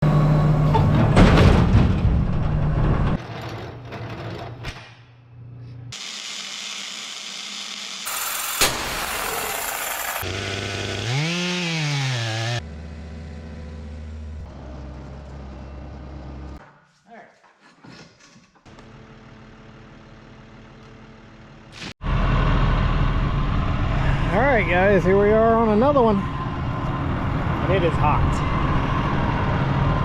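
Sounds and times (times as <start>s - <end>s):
power saws: 5.9s - 12.7s
engine revving: 8.0s - 15.1s.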